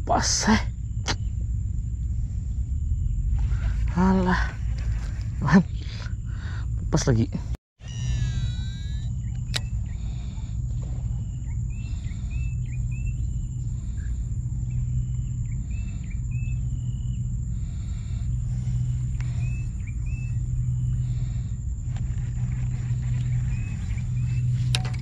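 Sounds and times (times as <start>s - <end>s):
steady low rumble: 0.0s - 25.0s
bird chirping: 7.8s - 21.2s, 22.2s - 25.0s
thin high whine: 7.8s - 25.0s.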